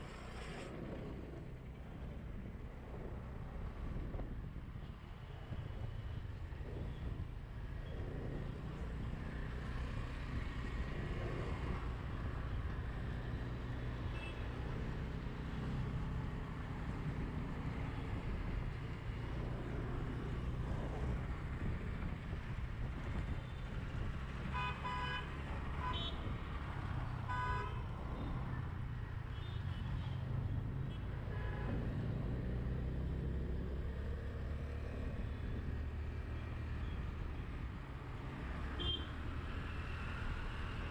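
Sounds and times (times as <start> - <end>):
traffic rumble: 0.0 - 40.9
vehicle horns honking: 38.8 - 39.1.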